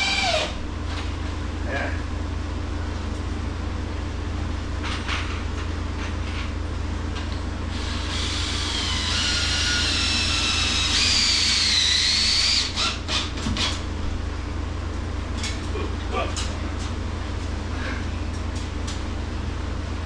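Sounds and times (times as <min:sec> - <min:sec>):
power drill whining: 0:00.0 - 0:00.6, 0:07.7 - 0:13.4.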